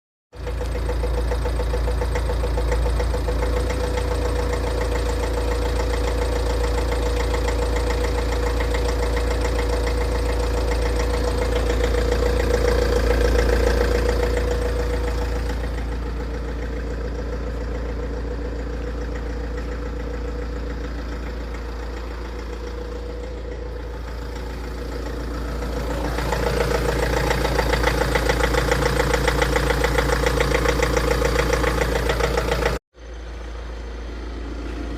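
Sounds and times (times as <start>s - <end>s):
diesel engine idling with knock: 0.4s - 34.9s.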